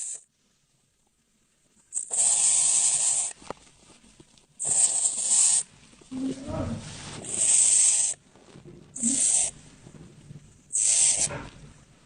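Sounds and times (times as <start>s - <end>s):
animal hissing: 0.0s - 0.2s, 1.9s - 3.4s, 4.6s - 8.2s, 9.0s - 9.6s, 10.7s - 11.6s.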